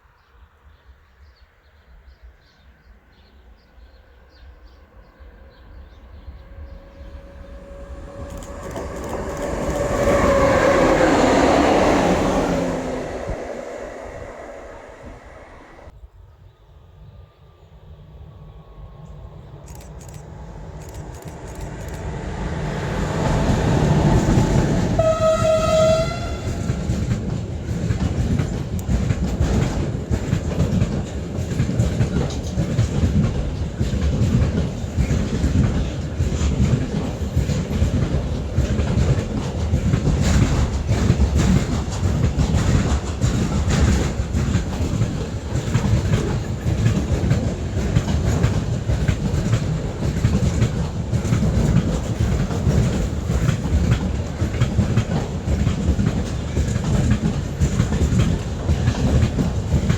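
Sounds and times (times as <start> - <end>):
train rumble: 3.8 - 16.0, 17.5 - 59.9
train horn: 6.1 - 15.9, 22.7 - 27.2
wheels clacking over rail joints: 7.0 - 15.9, 21.0 - 59.9.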